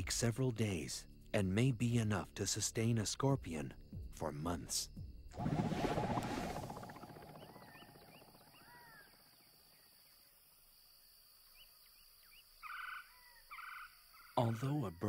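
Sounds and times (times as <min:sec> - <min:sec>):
faint bird chirps: 0:05.9 - 0:10.3, 0:11.5 - 0:14.6
loud bird call: 0:06.4 - 0:09.4.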